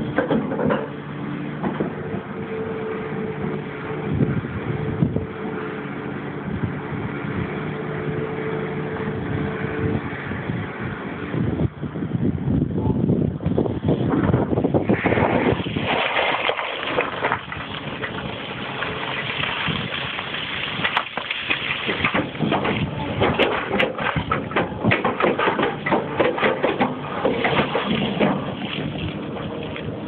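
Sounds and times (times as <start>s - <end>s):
excavator engine running: 0.0s - 14.8s, 17.0s - 30.0s
rattling and knocking: 21.8s - 29.6s.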